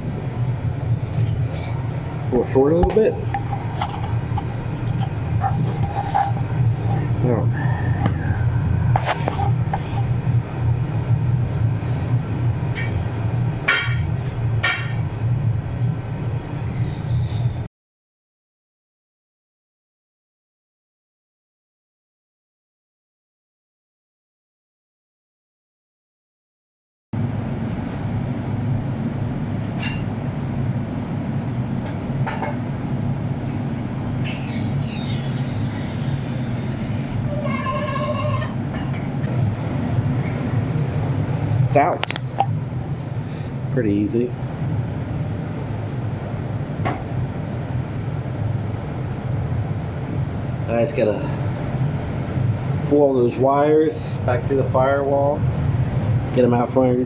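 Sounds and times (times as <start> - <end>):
low mechanical drone: 0.0 - 17.7, 27.2 - 57.0
short squeals: 34.0 - 38.6
brief squeak: 34.2 - 36.2.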